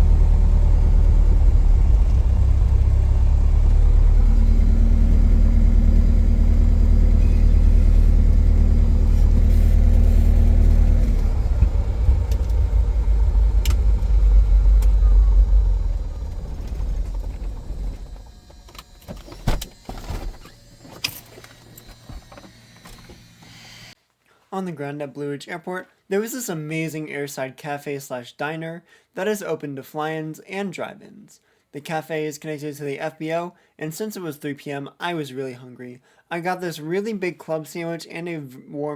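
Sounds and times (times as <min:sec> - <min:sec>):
airplane piston engine drone: 0:00.0 - 0:24.0.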